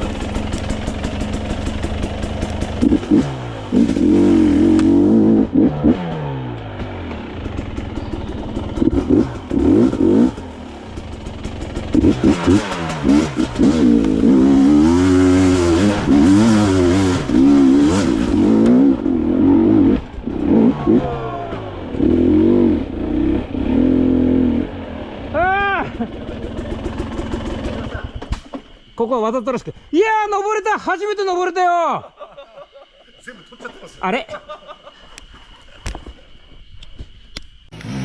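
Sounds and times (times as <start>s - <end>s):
dirt bike engine revving: 0.0s - 28.2s, 37.7s - 38.0s.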